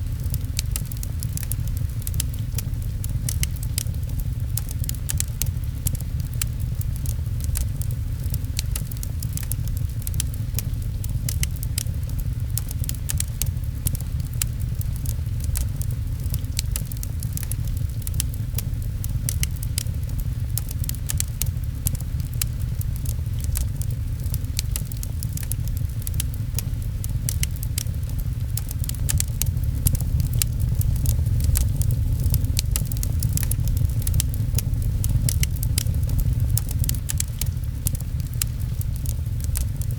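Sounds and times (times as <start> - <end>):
fireplace crackling and popping: 0.0 - 39.9
low rumble: 0.0 - 39.9
rain pattering: 0.0 - 39.9.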